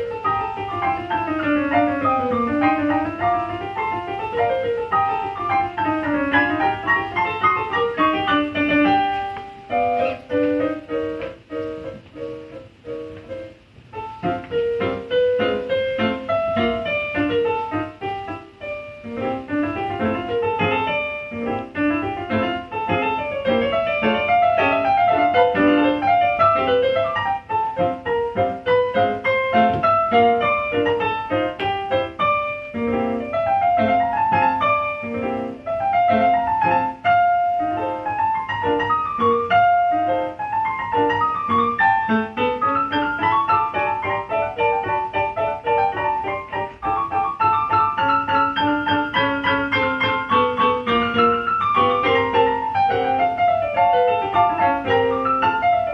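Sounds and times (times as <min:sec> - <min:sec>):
electronic keyboard piano melody: 0:00.0 - 0:55.9.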